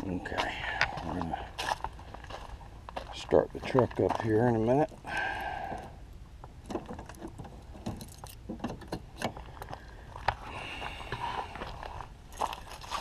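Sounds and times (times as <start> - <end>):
handling clicks and knocks: 6.4 - 9.7.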